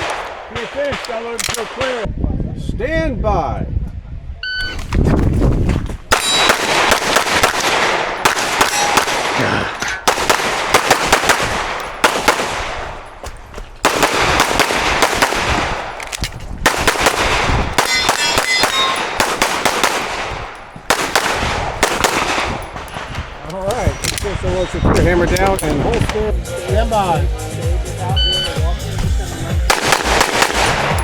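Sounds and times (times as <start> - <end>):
pistol shots: 0.0 - 2.1, 6.1 - 24.4, 29.6 - 31.0
steel targets clanging: 6.1 - 6.8, 7.8 - 10.0, 17.8 - 19.4.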